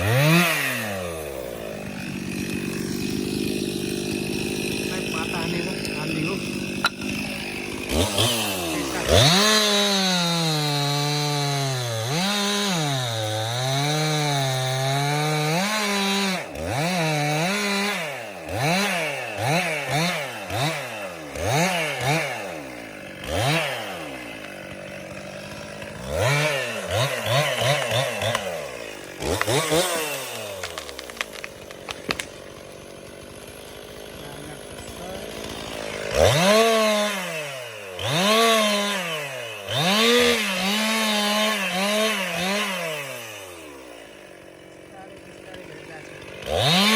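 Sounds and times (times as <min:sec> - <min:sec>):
chainsaw engine revving: 0:00.0 - 0:46.9.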